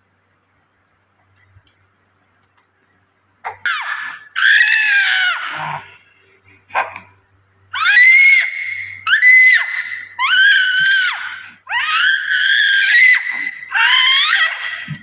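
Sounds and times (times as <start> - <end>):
baby squealing: 3.5 - 5.9, 7.8 - 15.0.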